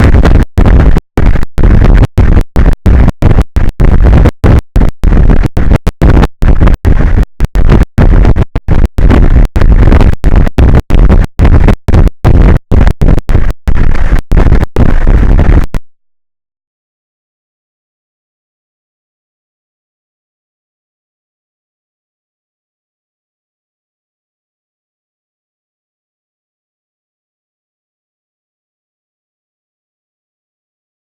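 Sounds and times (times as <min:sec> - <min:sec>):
loud distorted rumbling: 0:00.0 - 0:15.8.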